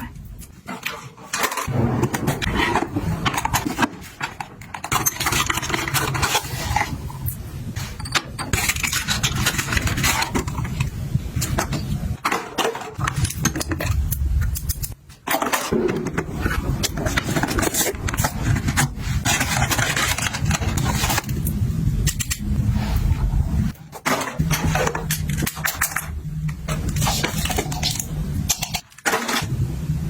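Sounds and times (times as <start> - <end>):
objects clicking and scraping: 0.0 - 29.5
steady low rumble: 16.2 - 23.8, 29.4 - 30.0.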